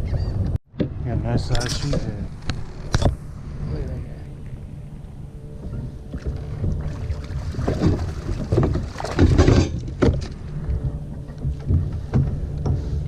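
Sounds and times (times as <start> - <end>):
wind rumble on microphone: 0.0 - 13.0
knocks and scrapes on kayak: 5.7 - 13.0.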